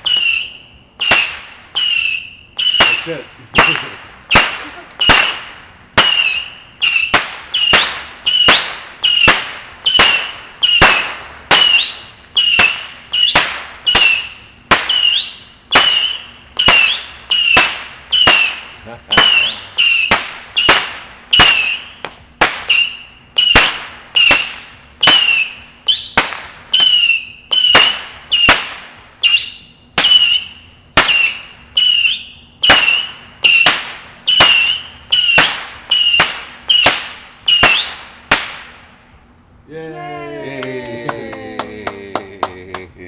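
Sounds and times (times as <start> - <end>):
whistling fireworks popping: 0.0 - 38.9.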